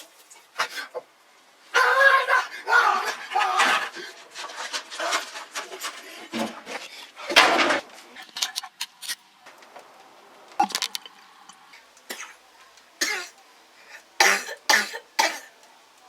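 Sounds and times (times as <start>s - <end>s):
person coughing: 14.2s - 15.5s.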